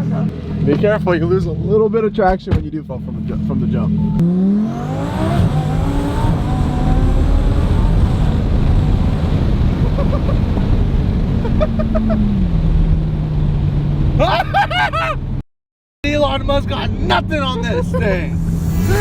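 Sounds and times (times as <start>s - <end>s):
car engine accelerating: 3.0s - 14.2s, 16.6s - 19.0s.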